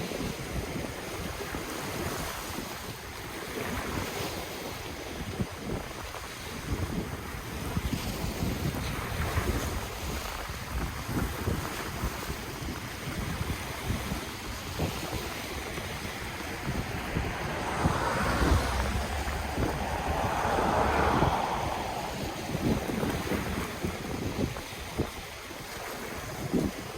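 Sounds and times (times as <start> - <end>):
wind rumbling on microphone: 6.6 - 26.9
ocean waves washing on shore: 13.1 - 26.9.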